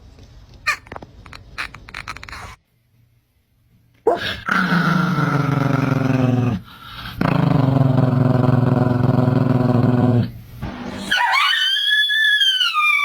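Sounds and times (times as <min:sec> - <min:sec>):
dog growling howls: 0:04.1 - 0:10.3, 0:11.0 - 0:13.0.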